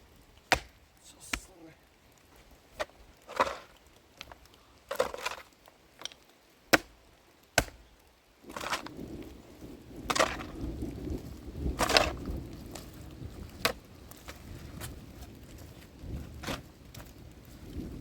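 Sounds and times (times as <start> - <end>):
sharp chopping knocks: 0.5 - 1.5, 6.7 - 7.0, 7.6 - 7.8.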